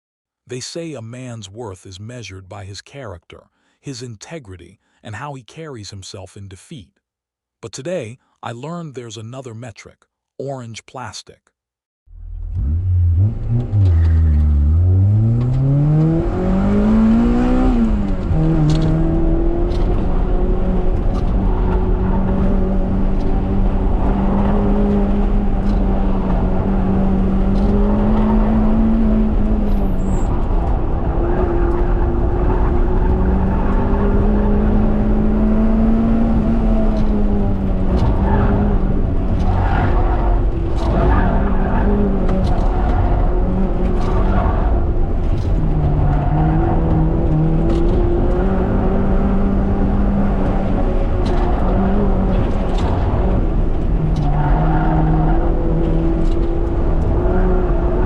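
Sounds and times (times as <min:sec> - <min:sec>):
car engine revving hard: 0:12.4 - 0:58.0.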